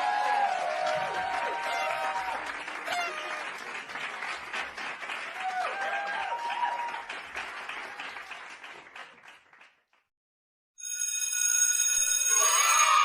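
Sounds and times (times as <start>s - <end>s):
children cheering and clapping: 0.0s - 9.8s, 12.3s - 13.0s
bell-like ringing tone: 10.8s - 13.0s
children shouting and laughing: 12.4s - 13.0s.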